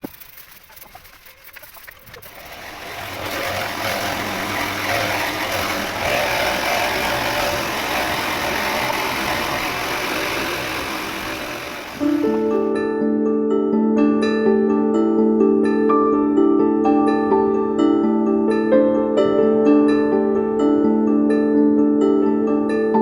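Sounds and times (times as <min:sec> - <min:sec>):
engine running: 0:00.0 - 0:12.7.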